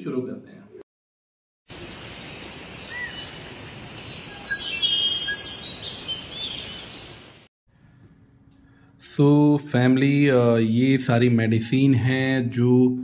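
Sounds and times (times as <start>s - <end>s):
small birds chirping: 1.7s - 7.4s.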